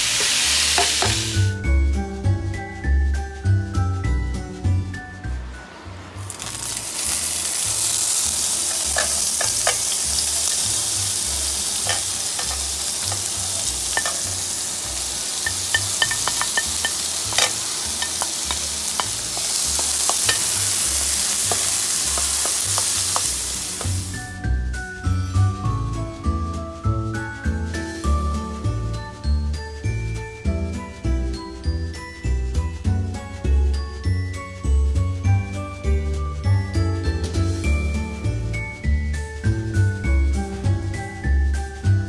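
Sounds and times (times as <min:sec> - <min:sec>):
food sizzling in a frying pan: 0:00.0 - 0:01.6, 0:06.3 - 0:24.3.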